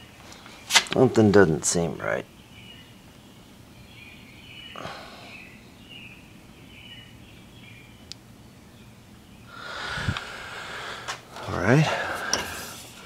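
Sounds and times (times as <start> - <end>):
rustle: 0.0 - 1.1
faint birds chirping: 0.0 - 13.0
low steady hum: 0.0 - 13.0.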